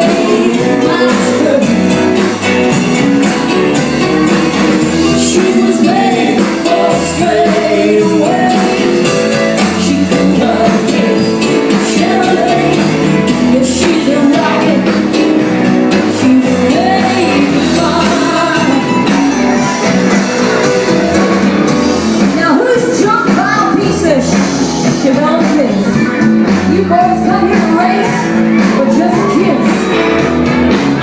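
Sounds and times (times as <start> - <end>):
woman singing: 0.0 - 1.8, 5.0 - 8.9, 9.6 - 15.1, 15.9 - 19.2, 22.3 - 24.4, 26.7 - 29.9
live band music: 0.0 - 31.0.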